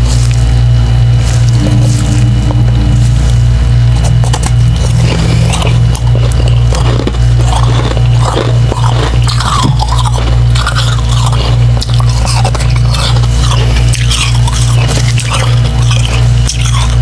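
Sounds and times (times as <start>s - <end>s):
chewing slushy ice: 0.0s - 17.0s
low hum: 0.0s - 17.0s.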